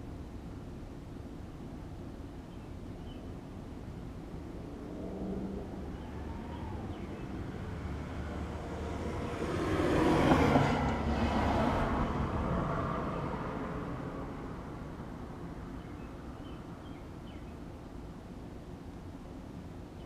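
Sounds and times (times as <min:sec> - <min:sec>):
vehicle passing by: 0:04.5 - 0:15.8.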